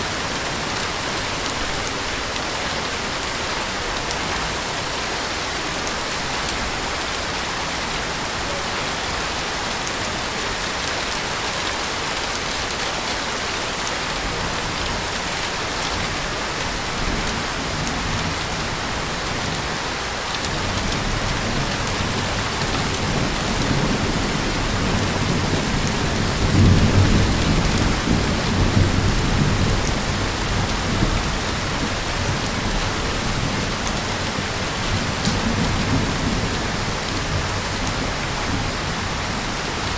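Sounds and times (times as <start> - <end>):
heavy rain falling: 0.0 - 39.9
thunder rumbling: 20.5 - 39.9.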